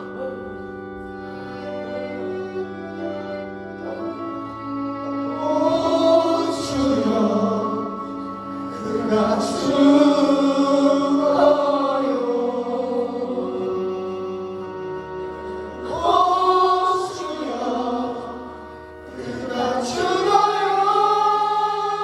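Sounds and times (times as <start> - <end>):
sustained instrumental chords: 0.0 - 22.0
people singing: 5.3 - 14.6, 15.3 - 22.0.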